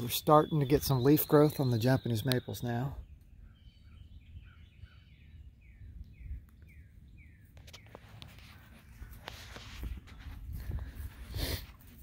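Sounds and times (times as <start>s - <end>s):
songbird whistling: 0.0s - 8.0s
rustling: 7.6s - 12.0s
footsteps: 7.7s - 12.0s.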